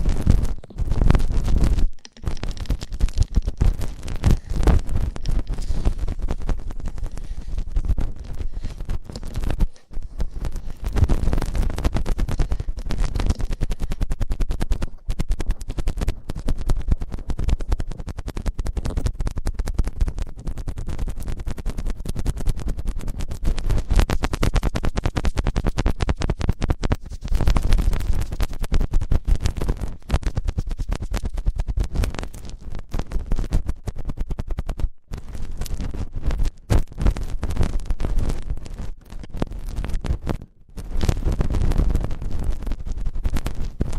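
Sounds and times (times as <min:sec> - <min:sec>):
scratching against microphone: 0:00.0 - 0:43.9.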